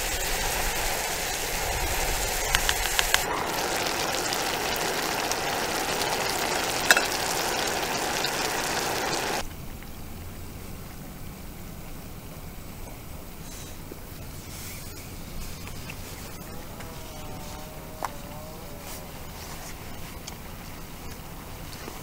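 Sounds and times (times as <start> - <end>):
food sizzling in a pan: 0.0 - 9.4.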